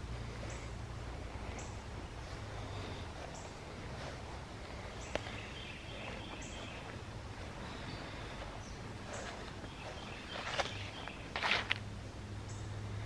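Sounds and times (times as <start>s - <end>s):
steady low background noise: 0.0s - 13.0s.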